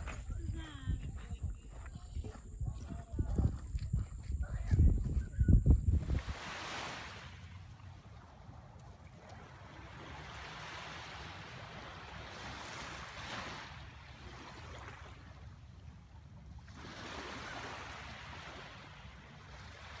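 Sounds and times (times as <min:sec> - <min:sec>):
wind rumble on microphone: 0:00.0 - 0:06.9
lake water washing: 0:00.0 - 0:20.0.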